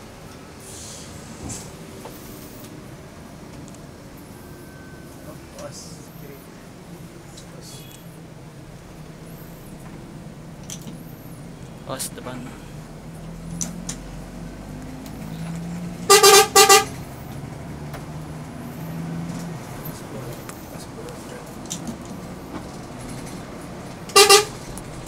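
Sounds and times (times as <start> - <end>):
bus engine drone: 0.0 - 25.0
bus horn blasts: 16.0 - 17.1, 24.1 - 24.7.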